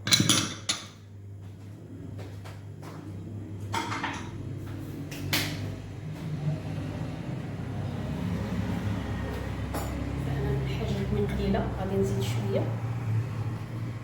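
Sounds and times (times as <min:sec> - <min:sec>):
utensils knocking against a bowl: 0:00.0 - 0:01.0.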